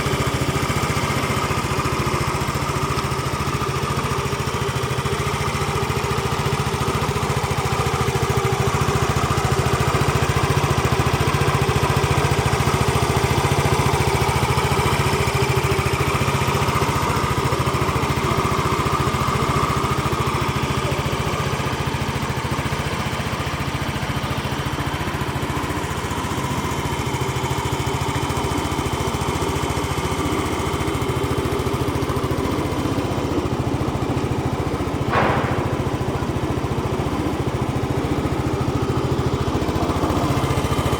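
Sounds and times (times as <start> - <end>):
scooter engine idling: 0.0 - 40.9
brief sharp sound: 35.1 - 37.0.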